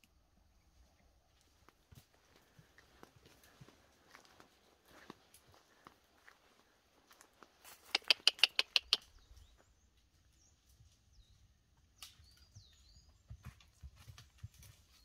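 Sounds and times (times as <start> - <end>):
horse hooves thudding: 1.3 - 6.1, 12.1 - 15.0
bird calling sharp notes: 7.8 - 9.4.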